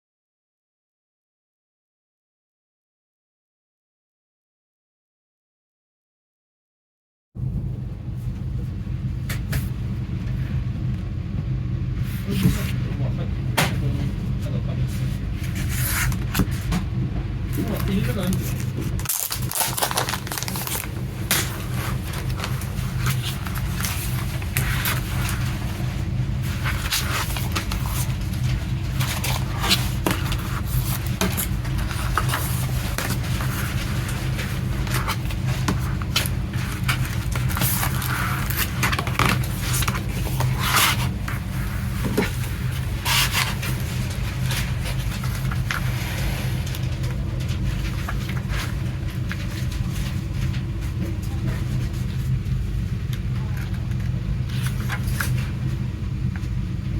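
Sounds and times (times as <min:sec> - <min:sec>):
low hum: 0:07.4 - 0:56.9
cardboard and paper rustling: 0:14.9 - 0:56.6.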